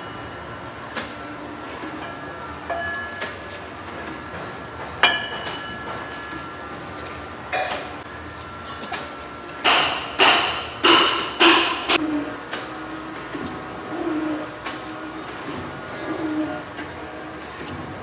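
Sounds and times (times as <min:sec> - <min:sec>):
metal clang ringing: 0:04.8 - 0:06.6
heavy knocks on metal: 0:09.7 - 0:12.0.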